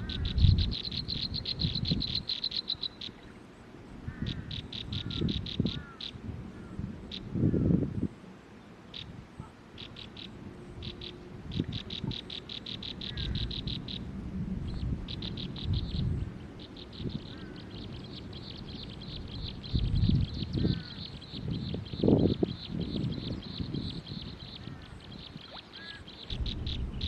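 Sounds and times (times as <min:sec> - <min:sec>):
low rumble: 0:26.3 - 0:27.0.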